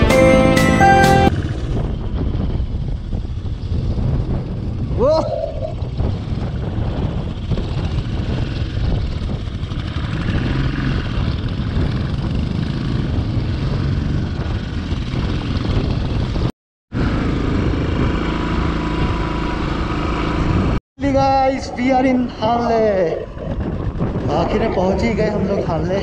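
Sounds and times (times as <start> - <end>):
motorcycle engine running: 1.2 - 5.1, 5.7 - 20.8.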